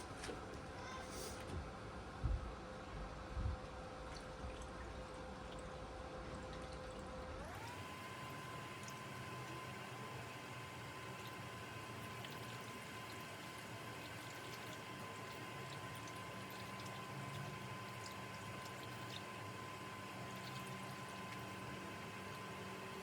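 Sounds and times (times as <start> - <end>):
liquid pouring: 7.6 - 23.0.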